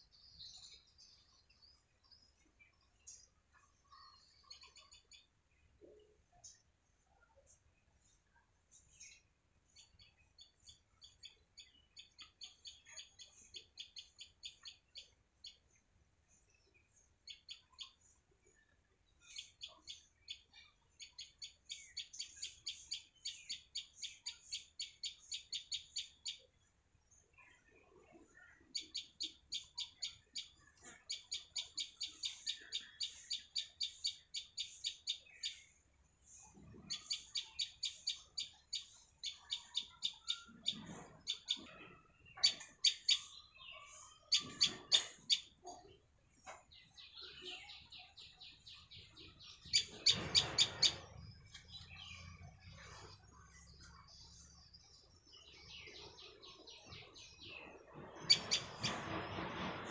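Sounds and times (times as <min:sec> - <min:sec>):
small bird chirping rapidly: 0:09.8 - 0:15.8, 0:19.1 - 0:26.5, 0:28.4 - 0:46.0, 0:46.6 - 0:59.9.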